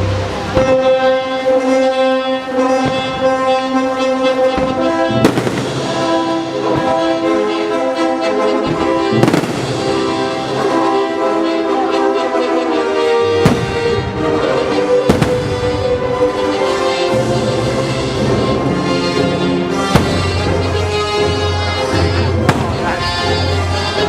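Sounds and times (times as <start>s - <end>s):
orchestral music with brass: 0.0s - 24.0s
fireworks bangs: 4.4s - 7.4s, 8.6s - 10.8s, 13.4s - 17.1s, 19.7s - 21.1s, 22.1s - 23.5s.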